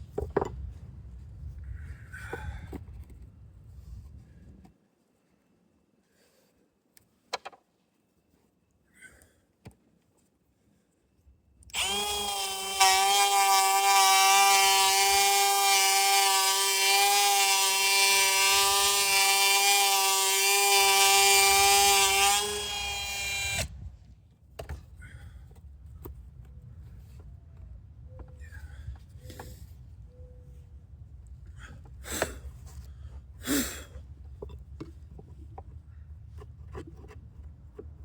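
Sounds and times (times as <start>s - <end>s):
power drill motor whining: 11.7s - 23.8s.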